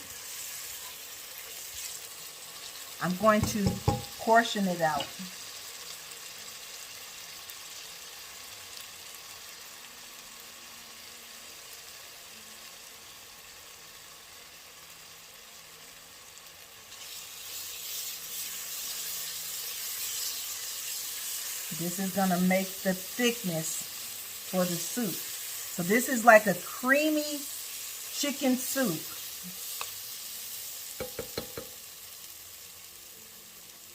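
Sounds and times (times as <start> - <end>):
vegetables sizzling in a pot: 0.0 - 33.9.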